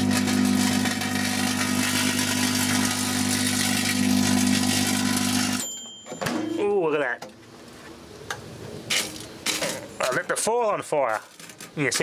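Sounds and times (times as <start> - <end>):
microwave oven humming: 0.0 - 6.7.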